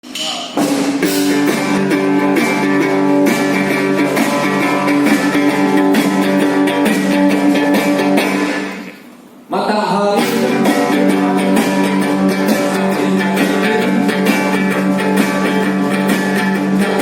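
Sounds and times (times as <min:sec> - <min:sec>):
sharp percussion hits: 0:00.0 - 0:09.1, 0:10.2 - 0:17.0
strummed guitar: 0:00.6 - 0:09.1, 0:10.0 - 0:17.0.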